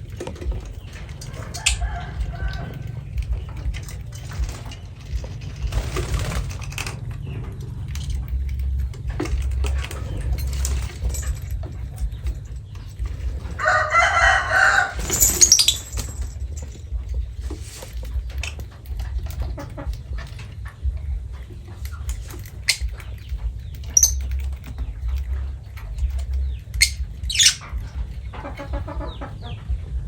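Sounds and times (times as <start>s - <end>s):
low steady rumble: 0.0s - 30.0s
bird chirps and clicks: 18.0s - 29.8s.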